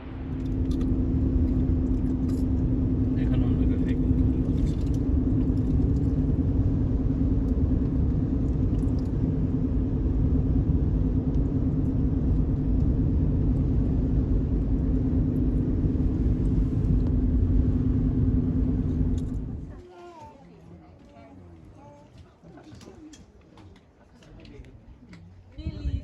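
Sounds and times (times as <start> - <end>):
engine running: 0.0 - 19.8.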